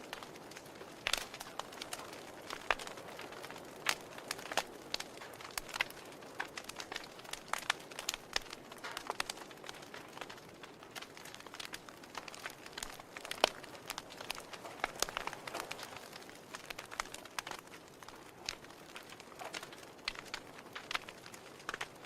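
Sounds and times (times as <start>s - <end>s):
fire hissing softly: 0.0s - 22.0s
logs crackling and popping: 0.0s - 22.0s.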